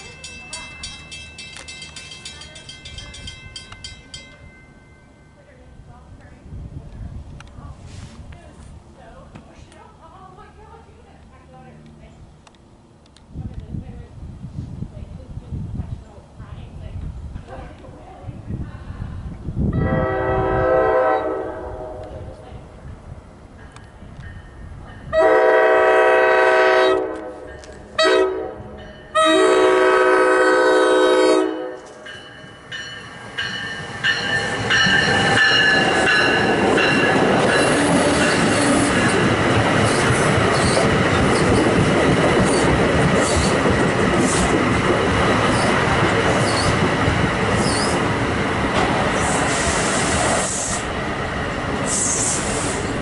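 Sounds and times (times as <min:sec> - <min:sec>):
train wheels rushing on rail: 0:13.2 - 0:53.0
train horn blasts: 0:19.7 - 0:22.2, 0:25.1 - 0:32.0
wheel squealing: 0:39.9 - 0:41.6, 0:47.6 - 0:48.0.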